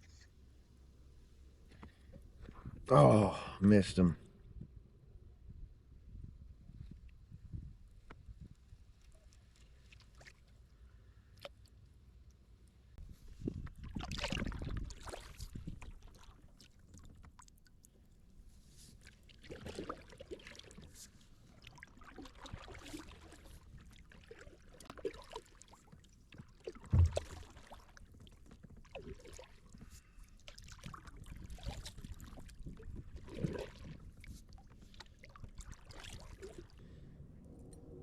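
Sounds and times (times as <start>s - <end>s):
paddle splashing in water: 13.6s - 17.5s, 18.9s - 36.8s
sharp knock: 26.9s - 27.4s.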